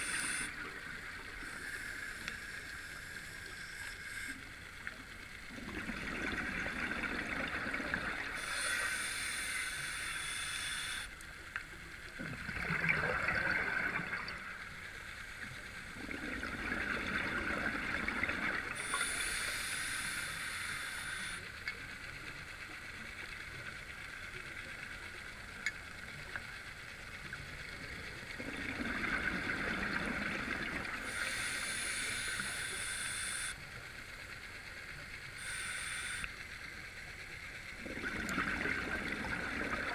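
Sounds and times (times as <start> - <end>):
regulator hissing inhalation: 0.0 - 0.6, 1.4 - 4.5, 8.4 - 11.2, 18.8 - 21.5, 31.0 - 33.6, 35.4 - 36.4
bubbling exhaust underwater: 5.4 - 10.0, 12.1 - 14.8, 15.9 - 21.4, 27.7 - 33.6, 37.7 - 39.9.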